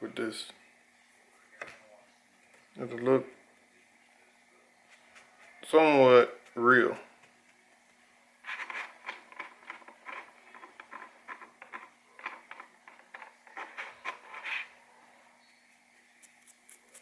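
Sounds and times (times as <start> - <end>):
hands scratching and tapping craft items: 6.4 - 14.7.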